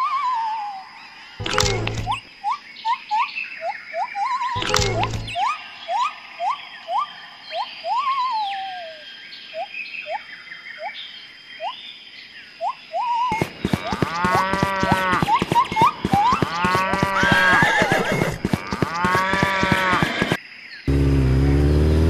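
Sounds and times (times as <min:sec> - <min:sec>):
livestock calls: 0:13.0 - 0:20.4.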